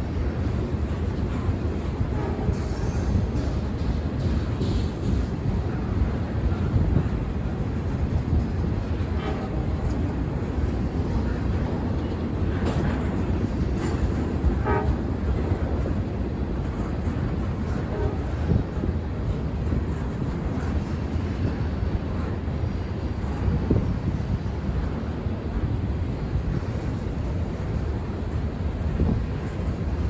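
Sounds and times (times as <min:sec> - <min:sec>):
freight train rumbling on track: 0:00.0 - 0:30.0.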